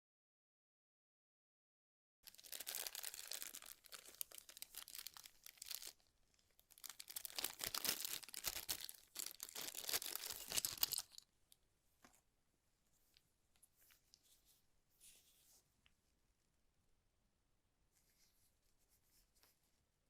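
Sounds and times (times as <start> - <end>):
packaging crinkling: 2.2 - 11.2.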